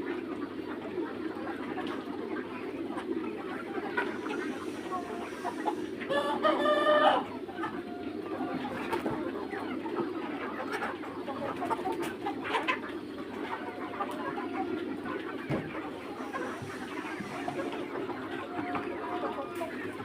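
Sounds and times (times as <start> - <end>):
chickens clucking and murmuring: 0.0 - 20.0
loud pitched chicken call: 3.5 - 9.2, 15.8 - 20.0.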